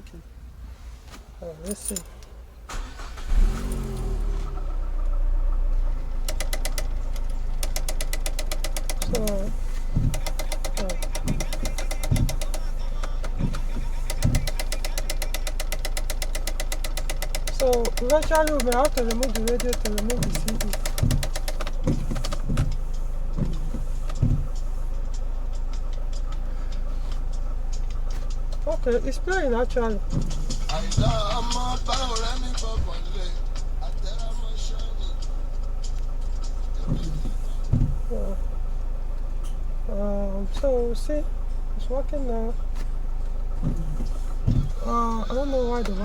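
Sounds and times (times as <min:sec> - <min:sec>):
car engine starting and idling: 0:00.0 - 0:46.0
steady low hum: 0:04.2 - 0:46.0
rapid sharp clicks: 0:06.2 - 0:09.4, 0:14.0 - 0:22.5
faint irregular ticking: 0:06.2 - 0:38.6
cd mechanism whirring and knocking: 0:06.2 - 0:39.6, 0:41.9 - 0:46.0
dull thumps: 0:08.4 - 0:15.9, 0:16.6 - 0:26.4, 0:27.3 - 0:33.8, 0:35.2 - 0:38.5, 0:43.4 - 0:46.0.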